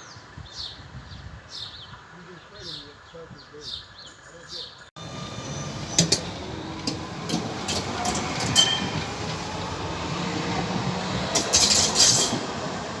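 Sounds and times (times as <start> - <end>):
tram running with low hum: 5.0 - 13.0
wheels clicking over track: 5.0 - 13.0.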